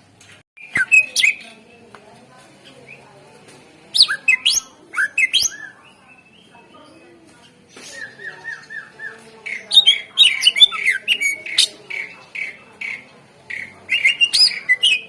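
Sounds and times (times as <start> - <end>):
bird singing whistled phrases: 0.6 - 1.4, 4.0 - 6.5, 13.9 - 15.0.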